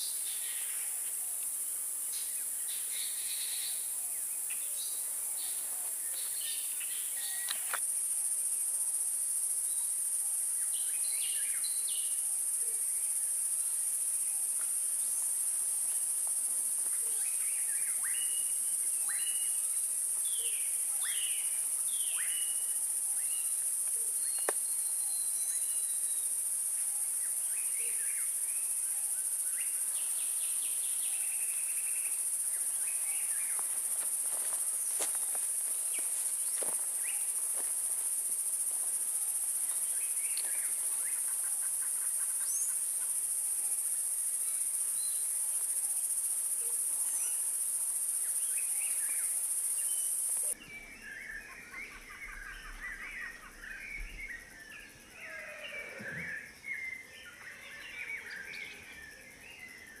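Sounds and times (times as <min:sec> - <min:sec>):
bird calls: 0:16.9 - 0:26.0, 0:49.9 - 0:59.0.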